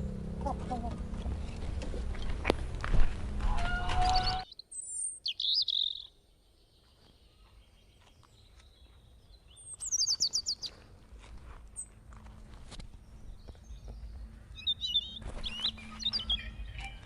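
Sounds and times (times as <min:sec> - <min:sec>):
faint outdoor background: 0:00.0 - 0:17.0
small birds chirping: 0:03.9 - 0:11.0, 0:11.6 - 0:12.0, 0:12.6 - 0:17.0.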